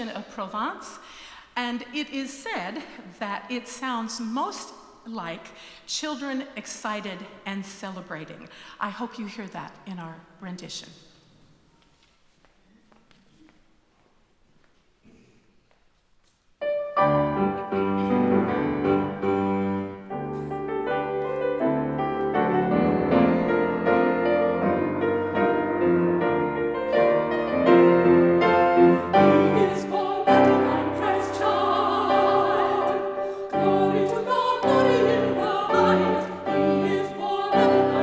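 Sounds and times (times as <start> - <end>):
lively piano carol: 16.6 - 38.0
women singing operatically: 29.1 - 38.0.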